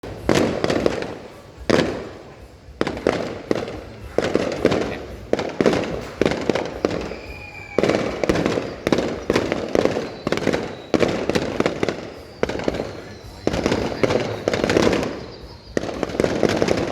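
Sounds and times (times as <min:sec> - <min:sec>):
fireworks bangs: 0:00.0 - 0:16.9
faint thin whistle: 0:06.6 - 0:16.8.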